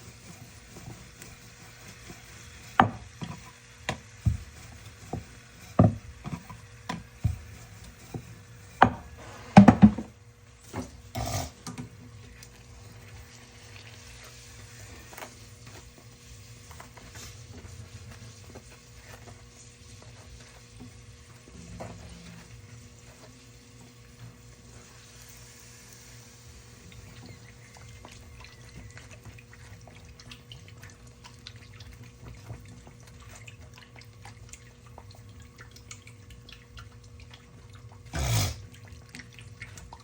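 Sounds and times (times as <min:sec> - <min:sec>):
dough frying in hot oil: 0:00.0 - 0:40.0
kitchen utensils knocking: 0:08.8 - 0:10.1.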